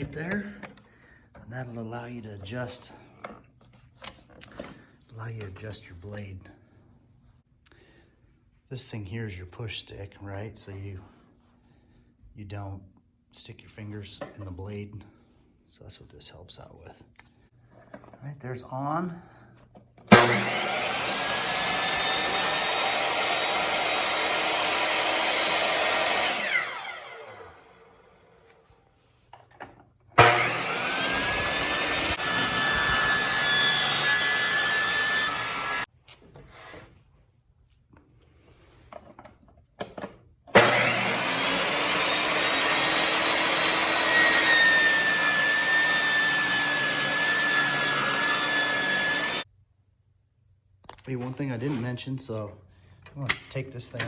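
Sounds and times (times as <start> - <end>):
saw blade cutting wood: 20.1 - 27.8, 30.2 - 35.9, 40.5 - 49.4
table saw running: 20.1 - 28.5, 30.2 - 35.9, 40.5 - 49.4.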